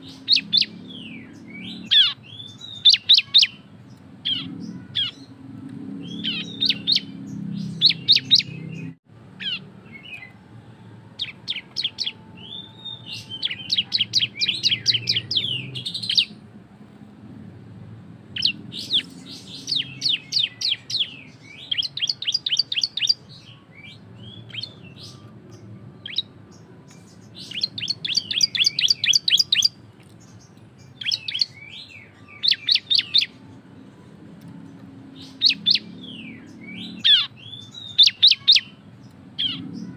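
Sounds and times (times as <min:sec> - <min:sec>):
bird singing high clipped notes: 0:11.2 - 0:16.4, 0:18.4 - 0:33.4.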